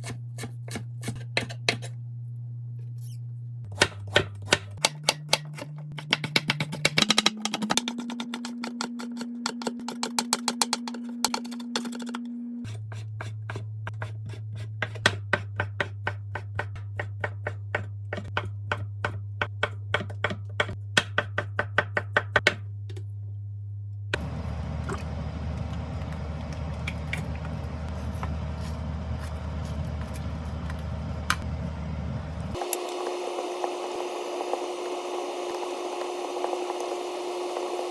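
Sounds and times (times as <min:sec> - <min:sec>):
low steady hum: 0:22.8 - 0:36.4.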